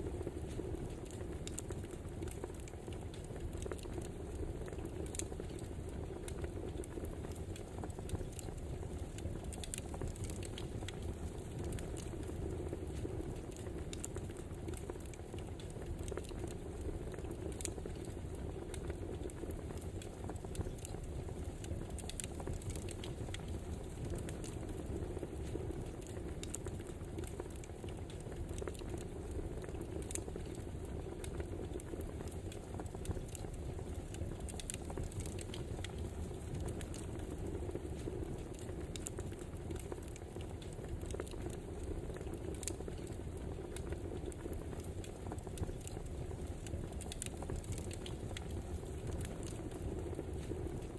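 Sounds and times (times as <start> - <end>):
low rush of burning fire: 0.0 - 50.9
logs popping and snapping: 44.8 - 49.8.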